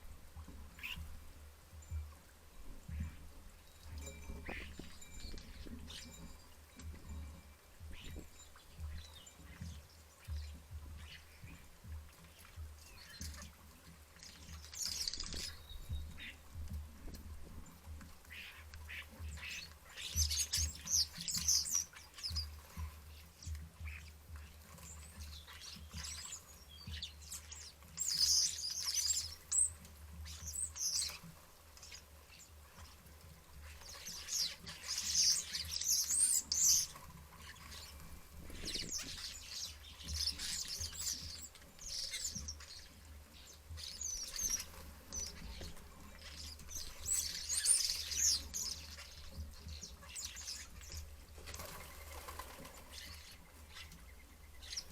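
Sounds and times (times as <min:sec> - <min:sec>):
starlings chattering: 0:04.0 - 0:07.0, 0:14.2 - 0:16.4, 0:18.3 - 0:22.6, 0:24.8 - 0:33.0, 0:33.6 - 0:54.9.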